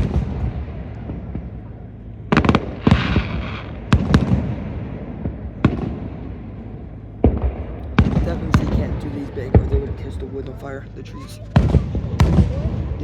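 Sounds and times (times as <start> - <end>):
fireworks bangs: 0.0 - 1.7, 2.3 - 6.6, 7.2 - 13.0.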